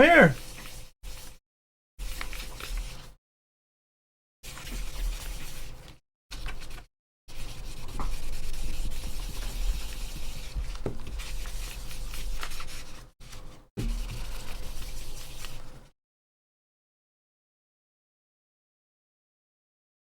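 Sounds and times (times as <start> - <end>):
rubbing and scratching: 6.3 - 15.9.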